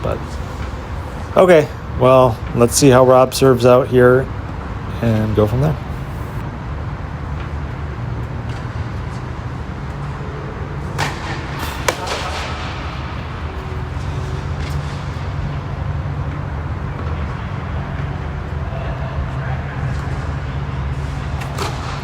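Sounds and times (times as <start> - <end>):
tennis ball struck by racquet: 11.0 - 14.0.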